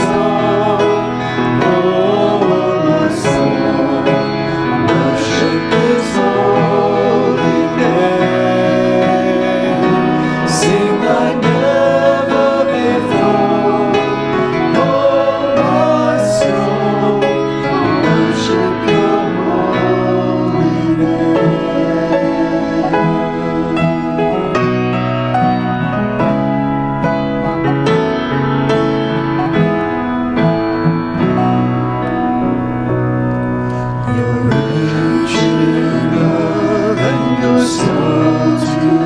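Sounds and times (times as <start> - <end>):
voices singing a worship song: 0.0 - 25.4, 33.7 - 39.0
instrumental accompaniment: 0.0 - 39.0.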